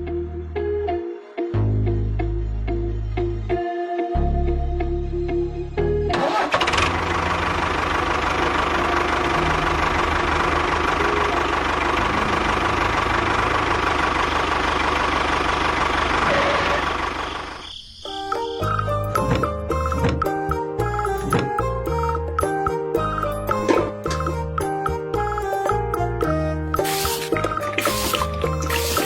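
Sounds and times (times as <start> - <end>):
small engine running: 6.2 - 17.6.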